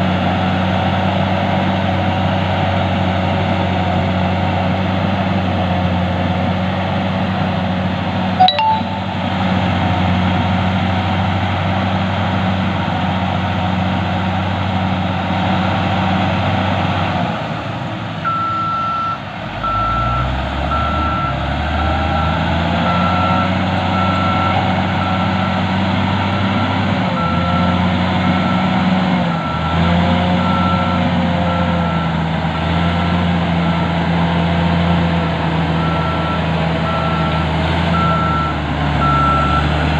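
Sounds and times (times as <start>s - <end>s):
diesel engine running: 9.1s - 39.9s
reversing alarm beeping: 35.8s - 39.7s.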